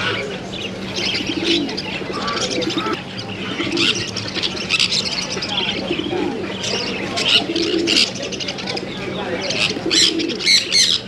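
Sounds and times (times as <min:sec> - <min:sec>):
doves cooing: 0:00.0 - 0:11.0
small birds chirping: 0:00.0 - 0:11.0
steady low hum: 0:00.0 - 0:11.0.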